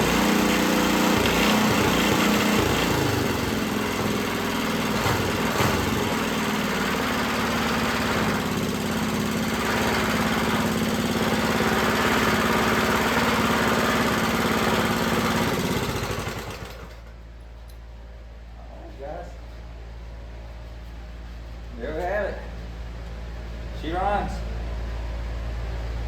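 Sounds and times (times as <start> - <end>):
small engine running: 0.0 - 17.1.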